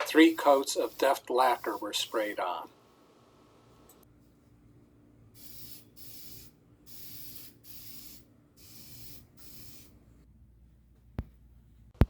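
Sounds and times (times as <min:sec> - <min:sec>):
spray can hissing bursts: 0:00.0 - 0:02.6, 0:05.4 - 0:09.9.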